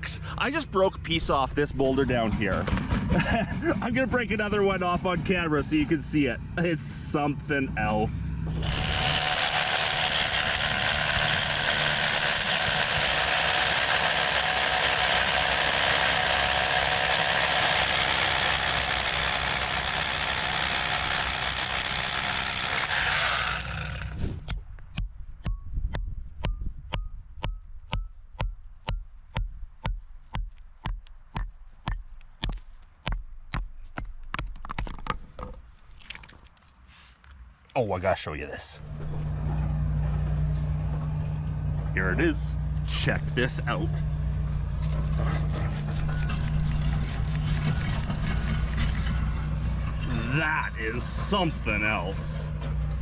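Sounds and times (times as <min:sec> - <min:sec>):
jackhammer hammering into rock: 0:08.5 - 0:25.1, 0:44.7 - 0:49.5.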